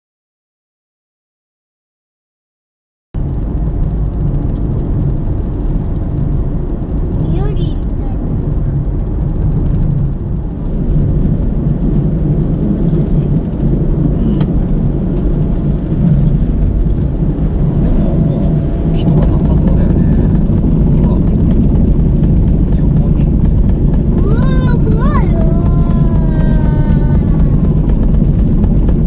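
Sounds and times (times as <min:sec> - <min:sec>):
car engine and tyre road noise: 0:03.2 - 0:29.0.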